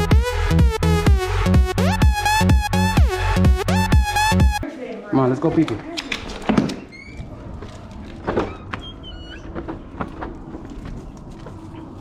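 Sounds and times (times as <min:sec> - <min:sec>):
door opening with knock: 0:06.0 - 0:07.3.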